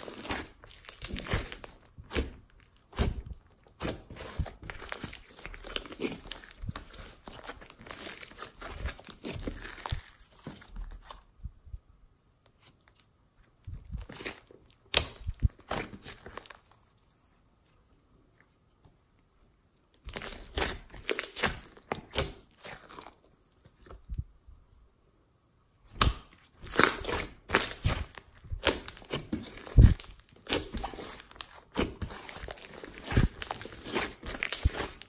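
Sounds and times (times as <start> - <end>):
slime crackling and popping: 0.0 - 11.2, 20.0 - 23.2, 25.9 - 35.0.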